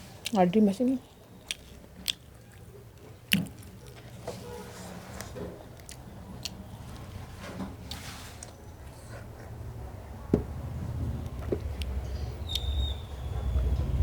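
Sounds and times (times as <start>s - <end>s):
wet chewing: 0.0s - 8.0s, 11.2s - 13.0s
lip and tongue clicks: 0.2s - 4.2s, 5.7s - 7.1s, 11.8s - 13.0s.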